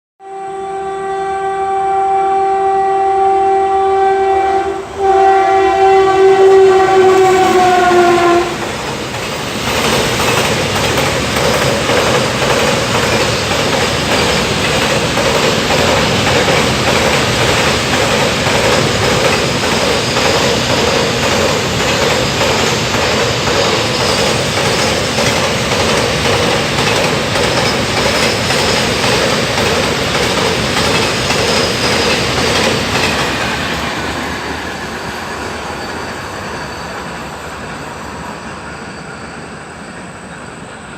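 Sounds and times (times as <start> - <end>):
train horn blasts: 0.2 - 8.8
train wheels clattering on track: 5.2 - 40.9.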